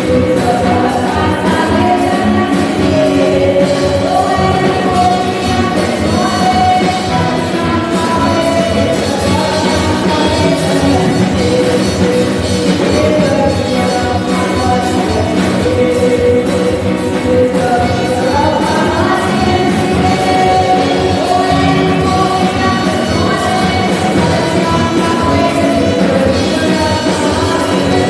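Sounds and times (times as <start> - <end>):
worship band playing: 0.0 - 28.0.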